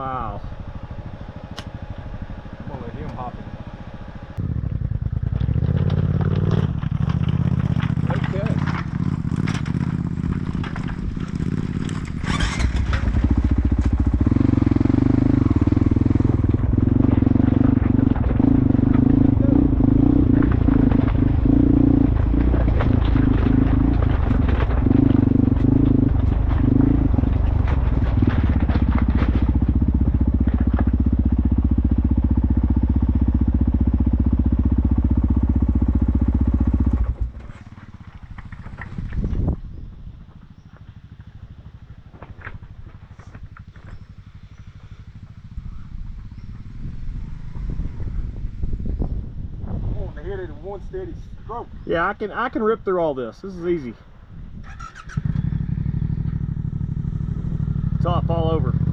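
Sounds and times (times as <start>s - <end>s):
motorcycle engine running: 0.0s - 52.7s, 53.4s - 58.9s
knocks and clatter: 5.1s - 32.4s, 34.8s - 39.6s.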